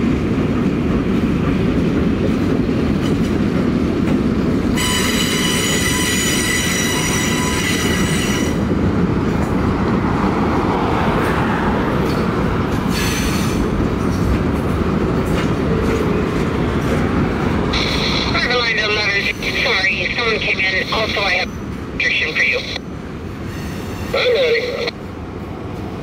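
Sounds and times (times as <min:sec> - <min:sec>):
freight train wheels rumbling: 0:00.0 - 0:26.0
high-pitched wheel squeal: 0:04.8 - 0:08.6.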